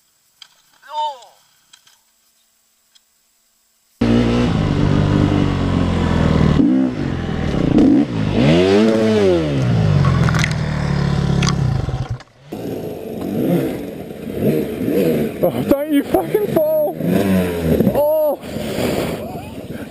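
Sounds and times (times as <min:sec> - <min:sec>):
another motorcycle revving: 0:04.0 - 0:19.9
motorcycle engine revving: 0:04.0 - 0:19.9.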